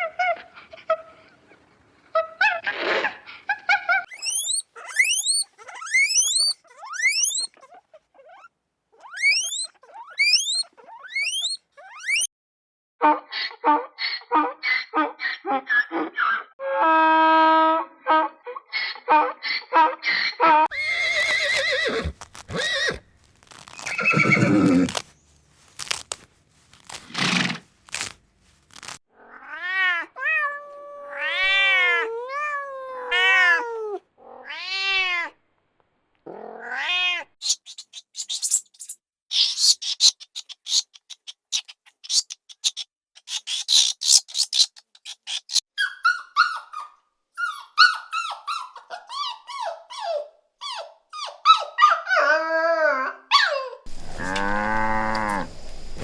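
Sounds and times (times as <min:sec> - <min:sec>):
high-pitched chirps and squeaks: 0:04.1 - 0:12.3, 0:20.8 - 0:29.0, 0:37.4 - 0:46.6
scraping and rustling: 0:20.7 - 0:29.0, 0:53.9 - 0:56.0
cat meowing: 0:36.3 - 0:37.4, 0:53.9 - 0:56.0.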